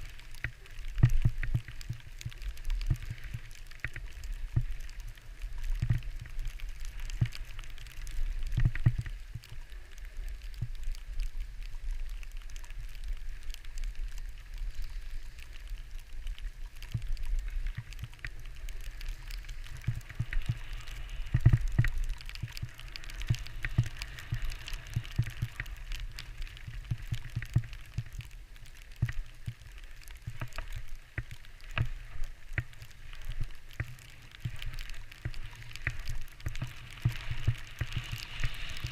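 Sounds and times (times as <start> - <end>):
skis hissing on snow: 34.2 - 38.9.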